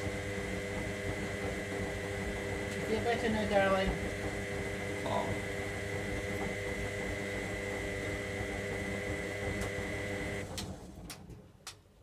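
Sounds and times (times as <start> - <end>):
washing machine whine and hum: 0.0 - 11.6.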